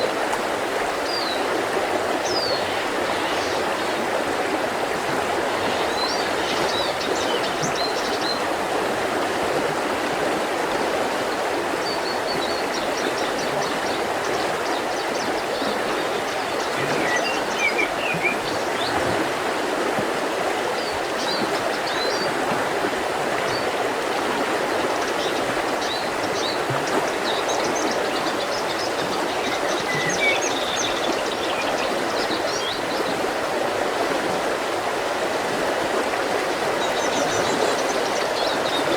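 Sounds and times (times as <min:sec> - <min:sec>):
river rushing over rocks: 0:00.0 - 0:14.6.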